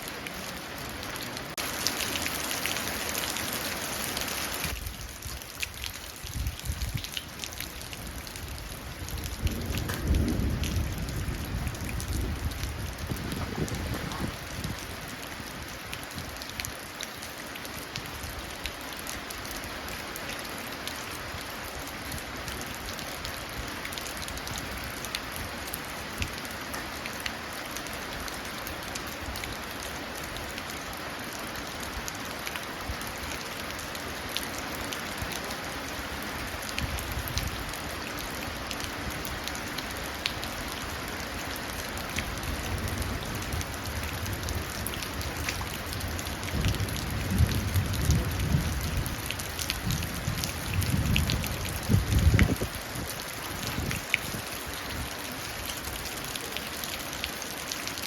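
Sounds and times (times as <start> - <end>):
rain running into puddles: 0.0 - 58.0
distant thunder rumble: 9.2 - 14.8.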